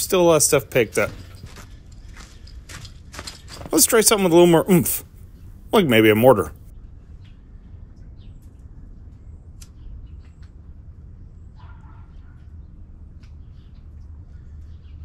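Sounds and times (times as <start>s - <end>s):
low steady rumble: 0.0s - 15.0s
small birds chirping: 7.0s - 15.0s.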